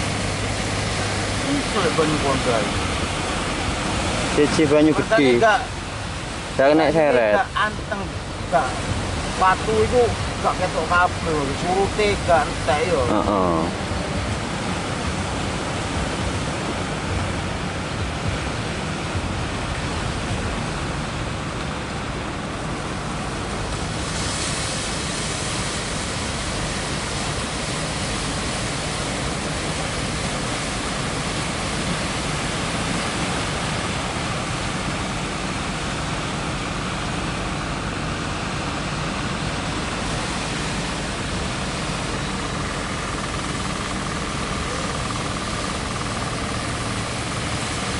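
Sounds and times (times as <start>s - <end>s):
sea surf rushing: 0.0s - 47.9s
water pouring through inlet: 23.5s - 47.9s.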